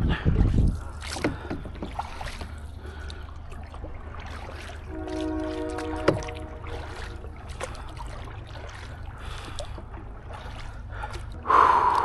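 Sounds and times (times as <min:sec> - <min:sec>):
canoe paddle swishing water: 0:00.4 - 0:12.0.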